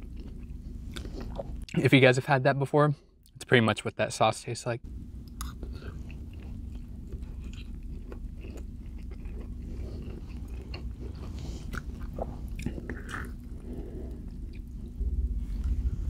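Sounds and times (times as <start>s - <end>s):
person chewing food: 0.0s - 1.7s, 5.3s - 15.3s.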